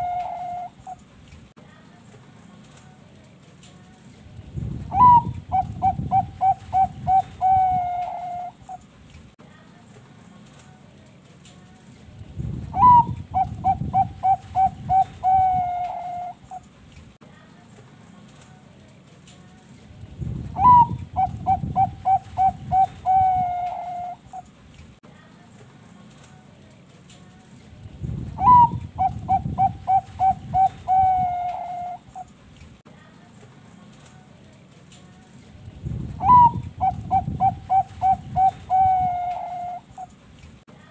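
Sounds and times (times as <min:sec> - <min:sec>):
dove cooing: 0:00.0 - 0:01.0, 0:04.9 - 0:08.9, 0:12.8 - 0:16.6, 0:20.6 - 0:24.5, 0:28.4 - 0:32.3, 0:36.2 - 0:40.1.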